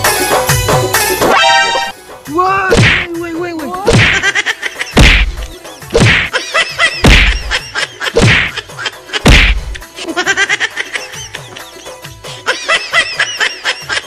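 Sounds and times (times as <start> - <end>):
background music: 0.0 - 14.0
stick whacks: 2.7 - 3.1, 3.8 - 4.2, 5.0 - 6.3, 7.0 - 7.5, 8.1 - 8.6, 9.2 - 9.8.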